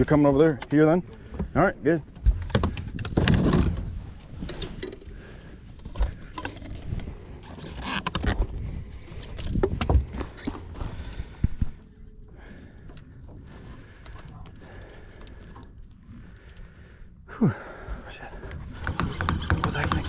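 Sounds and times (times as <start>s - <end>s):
fishing gear knocking and rubbing: 18.5s - 20.0s.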